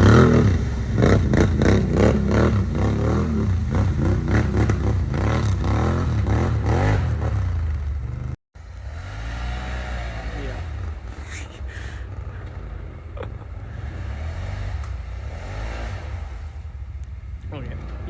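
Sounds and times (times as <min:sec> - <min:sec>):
steady engine running: 0:00.0 - 0:15.4
atv engine revving: 0:00.0 - 0:18.0.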